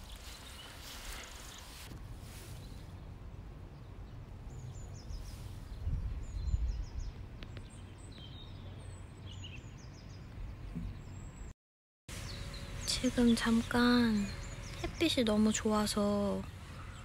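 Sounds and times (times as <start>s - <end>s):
small birds chirping: 0.0s - 11.5s, 12.1s - 17.0s.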